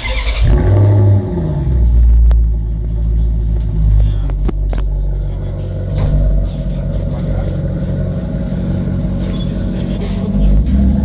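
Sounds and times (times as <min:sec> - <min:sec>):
car engine deep rumble: 0:00.0 - 0:11.0.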